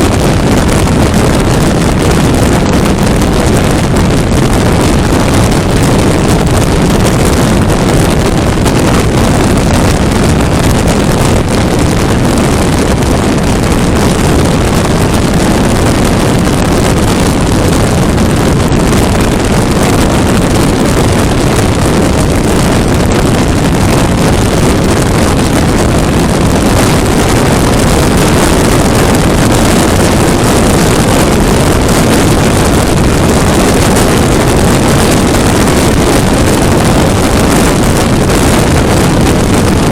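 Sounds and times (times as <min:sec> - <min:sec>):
road noise: 0:00.0 - 0:39.9
wind buffeting microphone: 0:00.0 - 0:39.9.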